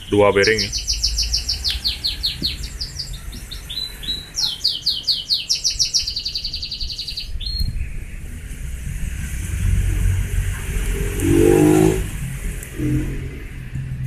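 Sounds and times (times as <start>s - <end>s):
small bird singing trills: 0.0s - 8.0s.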